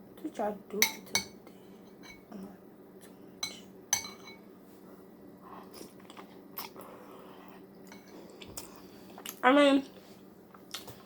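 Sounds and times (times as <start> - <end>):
low steady hum: 0.0 - 11.0
chewing and mouth sounds: 5.6 - 7.3.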